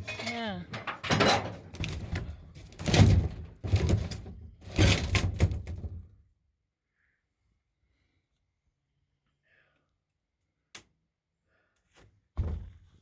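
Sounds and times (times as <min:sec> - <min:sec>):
rattling and knocking: 0:00.0 - 0:06.0.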